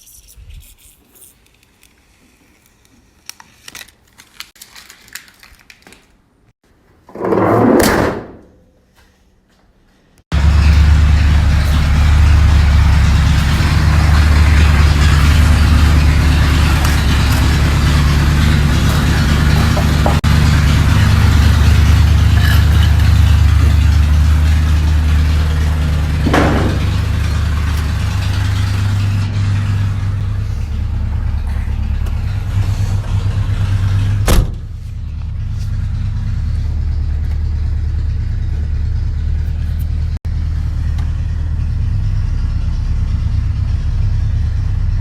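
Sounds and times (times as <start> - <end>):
road noise: 10.3 - 45.0
truck engine drone: 10.3 - 45.0
sharp thump: 26.3 - 27.0.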